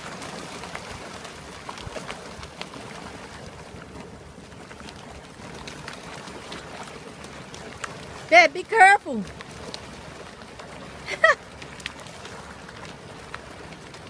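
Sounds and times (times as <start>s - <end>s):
water lapping and sloshing: 0.0s - 14.0s.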